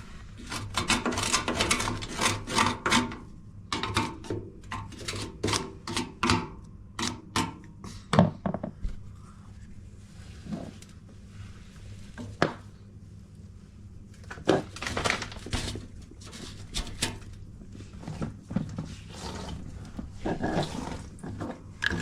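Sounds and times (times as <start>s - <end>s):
rubbing and scraping by hand: 0.0s - 3.2s, 15.5s - 22.0s.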